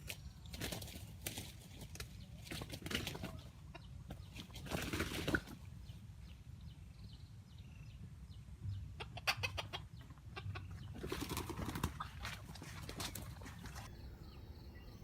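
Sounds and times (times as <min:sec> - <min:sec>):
chicken clucking: 0:02.9 - 0:04.7, 0:08.7 - 0:13.8.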